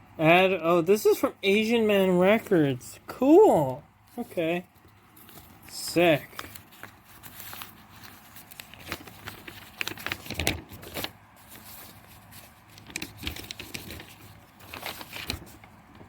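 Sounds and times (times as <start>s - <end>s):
paper rustling: 3.6s - 16.0s.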